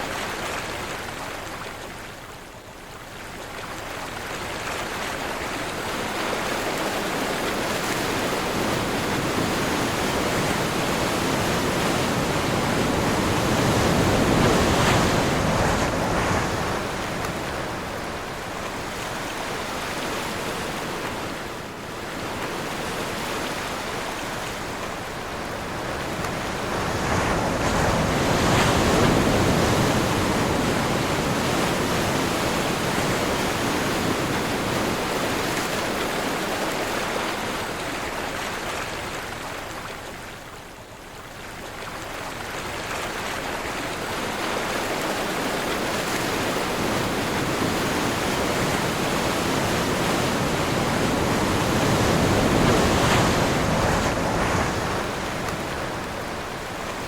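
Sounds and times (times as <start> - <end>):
ocean surf breaking: 6.2 - 37.8, 44.1 - 57.0
strong wind: 6.4 - 36.1, 44.0 - 57.0.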